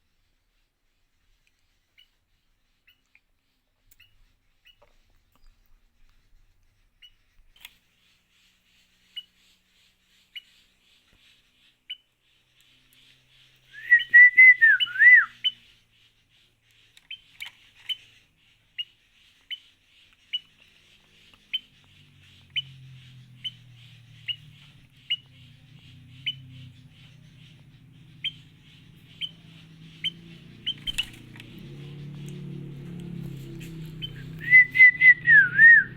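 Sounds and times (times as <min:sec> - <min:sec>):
bird warbling whistle: 0:13.7 - 0:15.6, 0:34.0 - 0:35.9.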